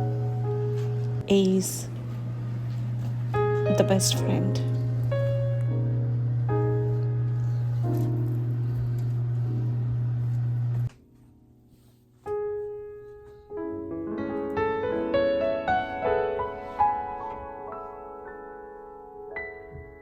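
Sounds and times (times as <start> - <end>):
solo piano arpeggios: 0.0 - 2.0, 13.6 - 20.0
steady low hum: 0.0 - 11.0
soft background music: 0.0 - 20.0.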